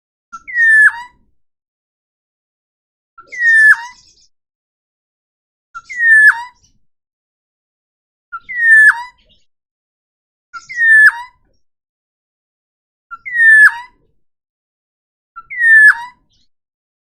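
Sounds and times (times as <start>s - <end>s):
bird whistled calls: 0.4s - 1.1s, 3.2s - 4.2s, 5.8s - 6.6s, 8.4s - 9.2s, 10.6s - 11.3s, 13.1s - 13.9s, 15.4s - 16.2s.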